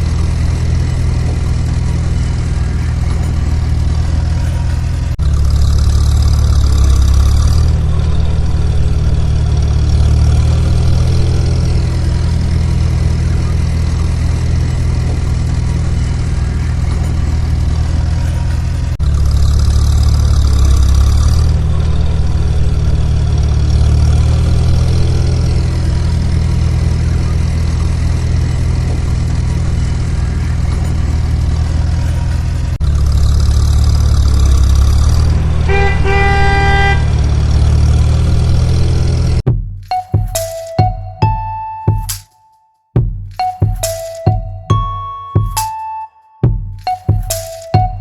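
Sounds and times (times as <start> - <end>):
truck engine running: 0.0 - 39.5
truck horn blasts: 34.8 - 38.2.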